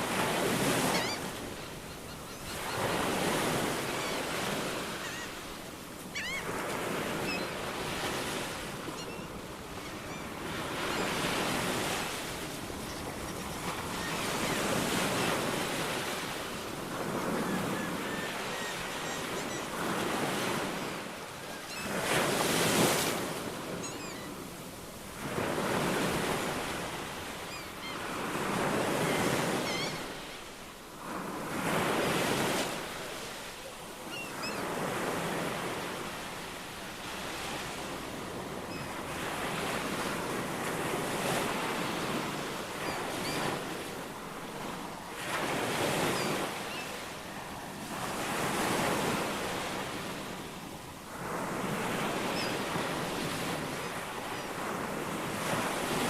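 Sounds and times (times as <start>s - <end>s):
ocean waves washing ashore: 0.0s - 56.0s
faint bird chirps: 5.0s - 5.4s, 6.1s - 6.5s, 8.9s - 11.2s, 23.8s - 24.4s.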